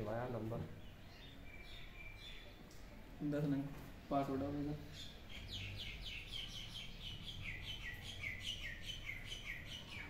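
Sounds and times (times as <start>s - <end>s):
small bird chirping: 0.8s - 2.7s, 4.8s - 10.0s.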